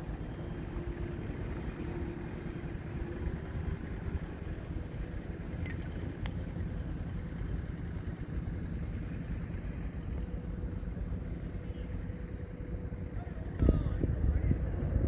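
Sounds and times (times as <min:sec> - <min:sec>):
wind buffeting microphone: 0:09.5 - 0:15.0.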